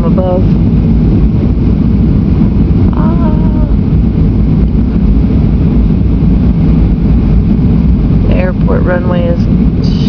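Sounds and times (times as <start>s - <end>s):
airliner engine rumble in cabin: 0.0s - 10.0s
faint voice: 2.9s - 3.8s.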